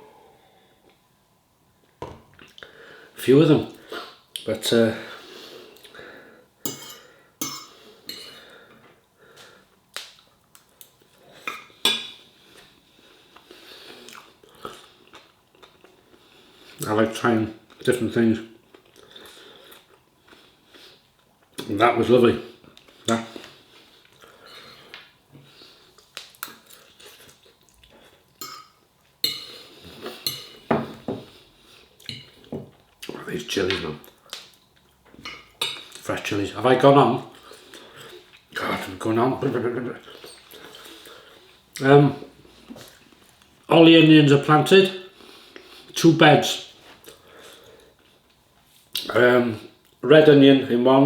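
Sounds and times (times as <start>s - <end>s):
cutlery clinking on a plate: 6.7s - 8.3s
cutlery clinking against a dish: 6.7s - 8.4s, 11.5s - 12.2s, 28.4s - 29.6s, 30.2s - 31.2s.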